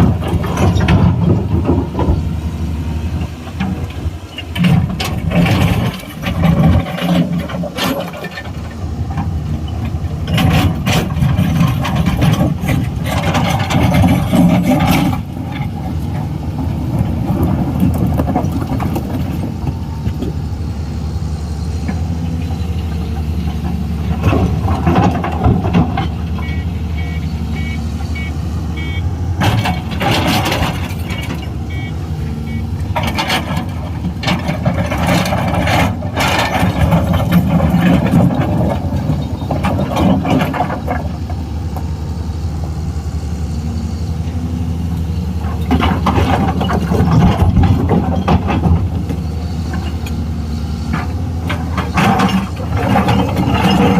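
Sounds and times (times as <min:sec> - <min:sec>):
excavator diesel engine running: 0:00.0 - 0:53.9
short high beeps: 0:26.4 - 0:29.1, 0:31.7 - 0:32.7
machine clanks and knocks: 0:29.4 - 0:31.5, 0:32.9 - 0:41.1, 0:45.6 - 0:48.9, 0:50.9 - 0:53.9.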